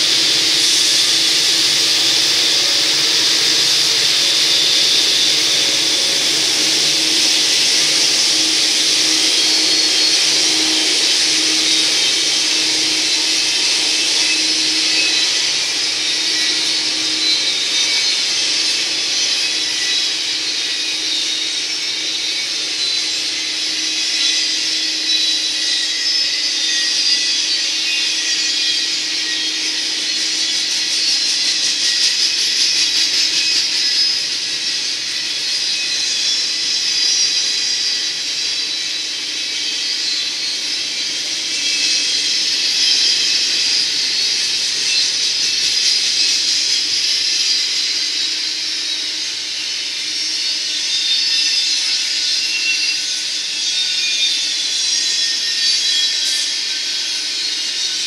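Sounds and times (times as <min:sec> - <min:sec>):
freight train wheels rumbling: 0:00.0 - 0:17.4.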